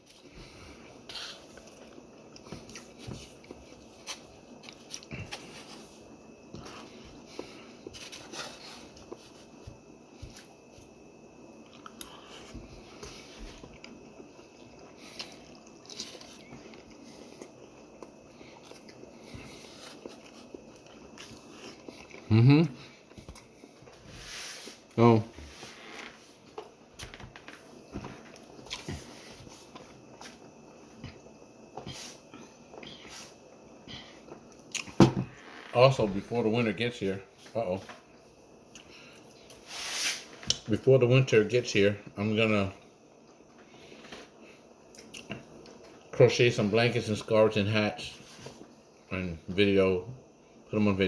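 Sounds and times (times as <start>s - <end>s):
person chewing food: 0.0s - 24.1s, 25.8s - 33.1s, 33.8s - 35.0s, 43.1s - 46.1s
chewing and mouth smacks: 11.6s - 12.4s, 13.0s - 19.3s, 19.9s - 22.3s, 23.0s - 24.0s, 34.3s - 35.0s, 44.9s - 46.1s.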